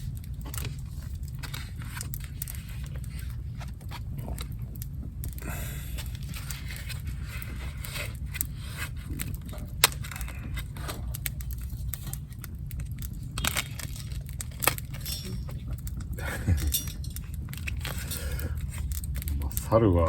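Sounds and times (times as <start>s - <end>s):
low steady rumble: 0.0s - 20.0s
metal gear clinking: 13.4s - 19.3s.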